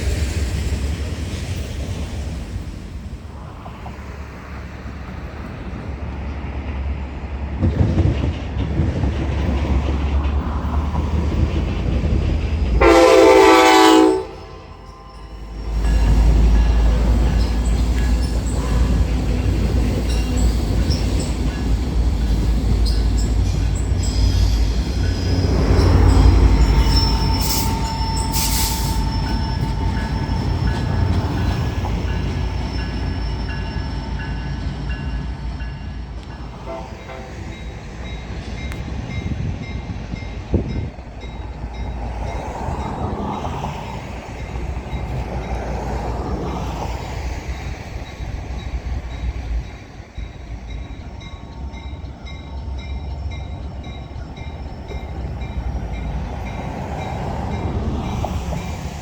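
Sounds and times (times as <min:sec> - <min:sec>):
train rumbling past: 0:00.0 - 0:59.0
wheels squealing: 0:14.7 - 0:34.8.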